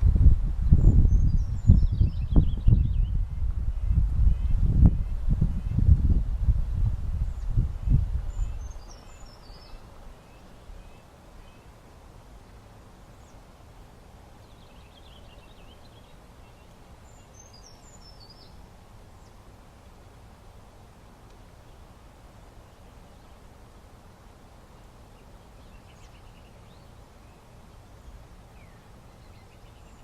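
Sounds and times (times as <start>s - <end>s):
low noisy rumble: 0.0s - 30.0s
small birds chirping: 0.6s - 6.1s, 7.1s - 11.8s, 14.4s - 19.5s, 24.6s - 30.0s.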